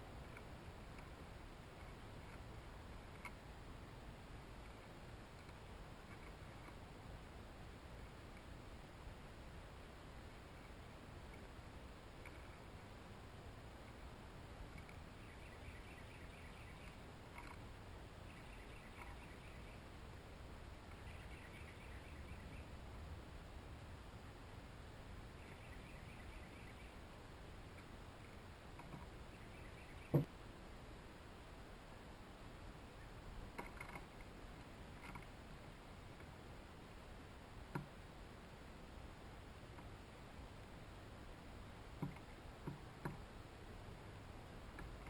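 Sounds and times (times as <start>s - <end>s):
low outdoor rumble: 0.0s - 45.0s
songbird chirps: 0.0s - 45.0s.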